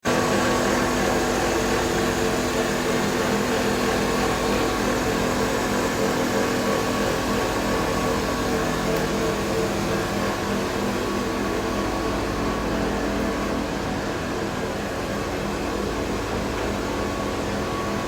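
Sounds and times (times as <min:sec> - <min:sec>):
machinery motor and fan hum: 0:00.0 - 0:18.0.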